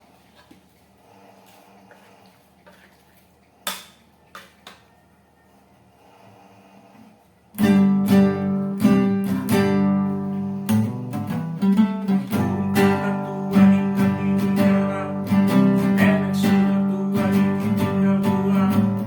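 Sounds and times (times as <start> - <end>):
acoustic guitar strumming chords: 7.6 - 19.0.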